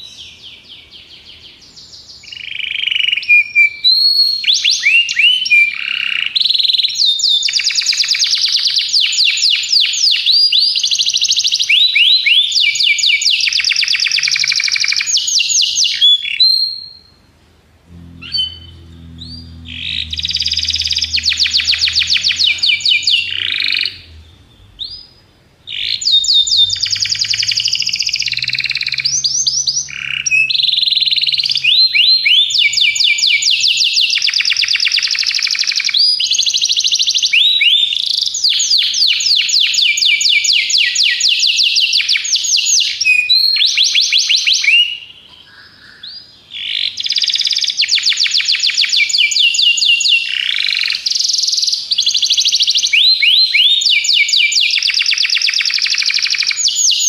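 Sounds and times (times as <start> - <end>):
canary singing trills: 17.9 - 57.0.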